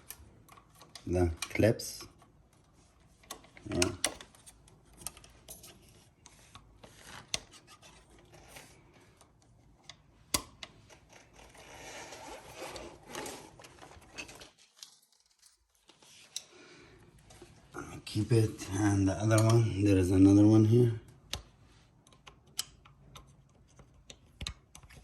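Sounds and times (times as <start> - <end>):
rubbing and scraping: 5.4 - 8.9, 10.9 - 16.3.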